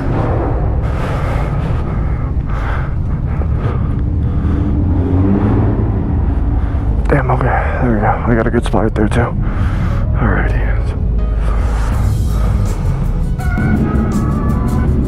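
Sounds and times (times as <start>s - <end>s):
motorcycle engine low rumble: 0.0s - 15.0s.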